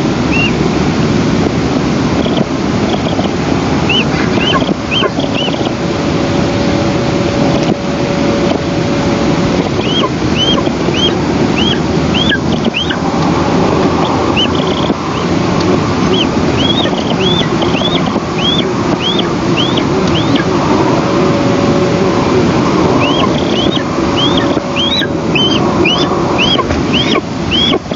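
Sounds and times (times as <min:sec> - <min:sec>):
wind on microphone: 0:00.0 - 0:27.9
high bird chirps: 0:00.3 - 0:00.6, 0:03.9 - 0:05.7, 0:09.6 - 0:13.0, 0:14.0 - 0:15.3, 0:16.0 - 0:20.5, 0:23.0 - 0:27.9.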